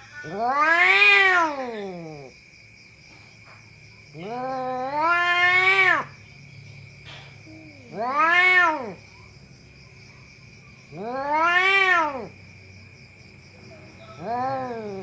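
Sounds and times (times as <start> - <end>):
cat yowling: 0.0 - 2.3, 4.1 - 6.2, 7.4 - 9.4, 10.8 - 12.4, 14.0 - 15.0.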